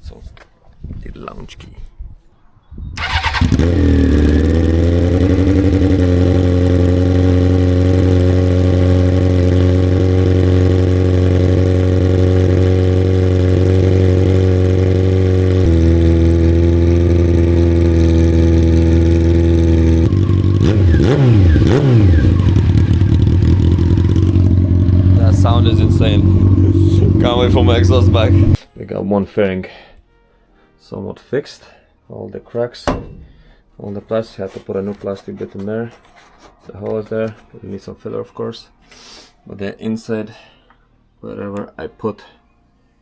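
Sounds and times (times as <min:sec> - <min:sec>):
motorcycle engine revving: 0:03.0 - 0:28.6.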